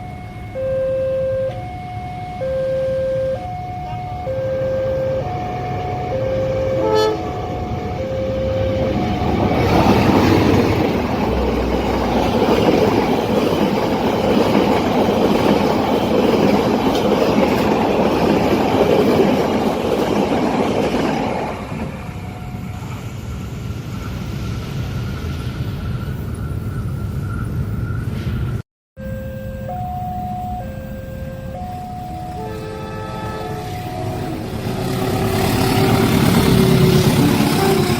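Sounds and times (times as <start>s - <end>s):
level crossing two-tone warning: 0.0s - 19.0s, 29.0s - 37.9s
train wheels on rails: 5.2s - 28.6s, 31.6s - 37.9s.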